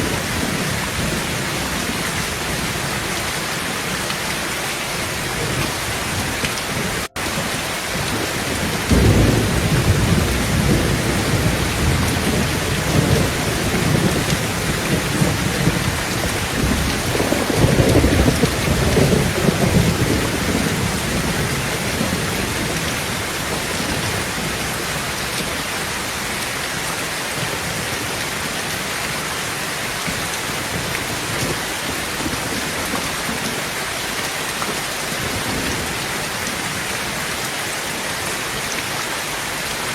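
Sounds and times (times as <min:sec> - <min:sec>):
thunder rumbling: 0:00.0 - 0:26.4
heavy rain on a tin roof: 0:00.0 - 0:39.9.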